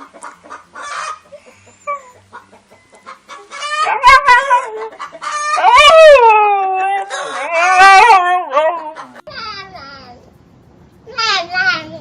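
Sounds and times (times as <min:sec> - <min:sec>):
dog howling: 0:03.6 - 0:09.1.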